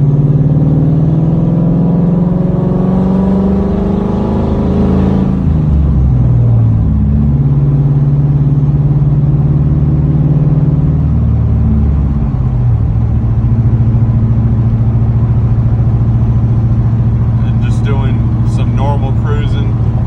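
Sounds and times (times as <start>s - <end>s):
car engine exhaust running: 0.0s - 20.0s.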